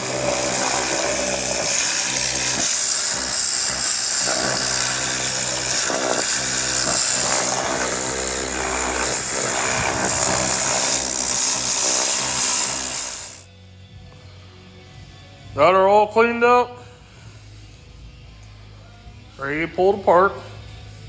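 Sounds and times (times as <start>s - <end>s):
pressure washer spraying: 0.0s - 13.4s
background music: 0.0s - 21.0s.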